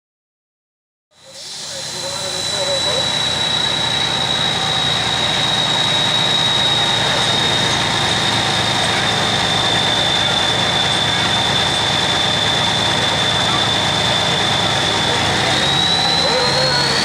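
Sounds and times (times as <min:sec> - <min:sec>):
diesel tractor engine running: 0:01.2 - 0:17.0
high whistle: 0:01.2 - 0:17.0.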